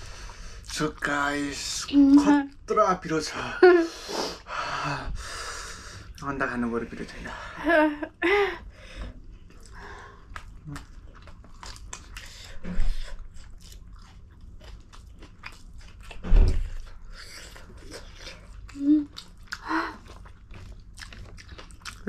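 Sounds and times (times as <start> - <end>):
chewing and biting food: 9.4 - 22.0.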